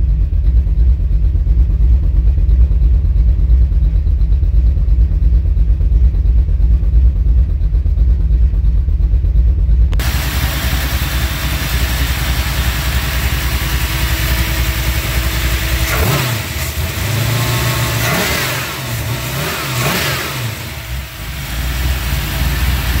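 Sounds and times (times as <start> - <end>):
engine rumbling and revving: 1.6 - 23.0.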